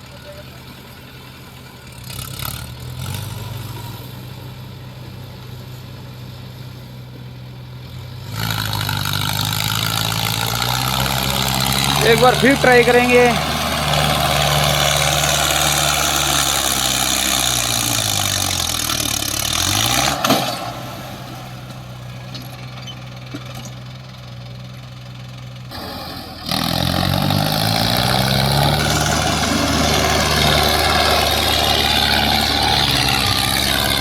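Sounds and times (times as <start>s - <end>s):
diesel tractor engine under load: 0.0s - 34.0s.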